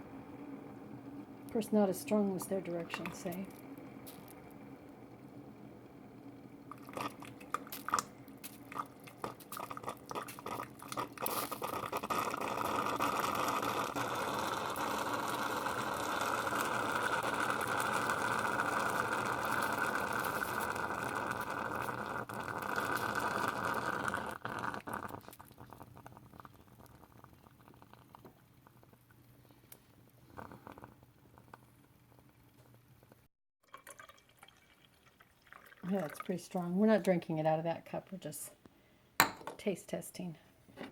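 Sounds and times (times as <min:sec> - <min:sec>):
liquid flowing: 0:06.2 - 0:28.2, 0:33.6 - 0:36.6.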